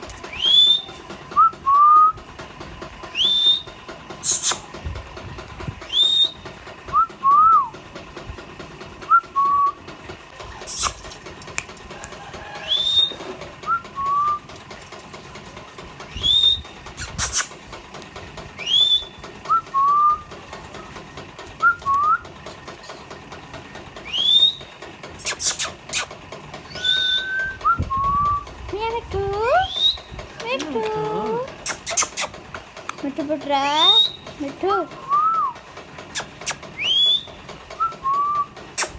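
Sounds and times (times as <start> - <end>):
parrot whistling: 3.2 - 4.6, 5.9 - 6.5, 10.7 - 11.0, 12.6 - 14.4, 16.1 - 17.6, 18.6 - 20.2, 24.0 - 26.1, 26.7 - 28.4, 29.6 - 30.1, 31.6 - 32.3, 33.6 - 34.3, 36.2 - 38.9.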